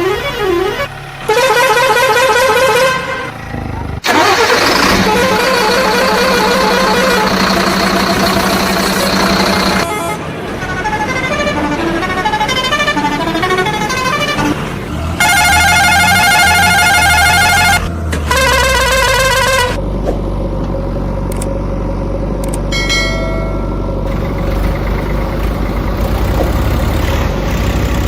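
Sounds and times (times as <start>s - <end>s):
toy truck warbling horn tones: 0.0s - 19.8s
toy truck engine rumble: 0.0s - 28.0s.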